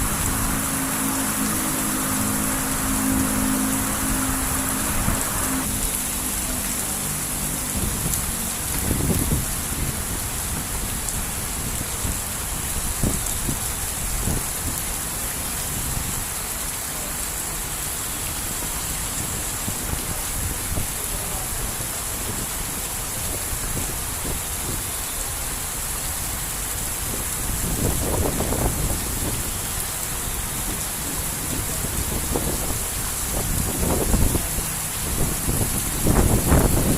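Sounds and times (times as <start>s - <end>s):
wind gusting rumbles: 0.0s - 5.8s, 31.5s - 36.9s
heavy rain pouring: 0.0s - 36.9s.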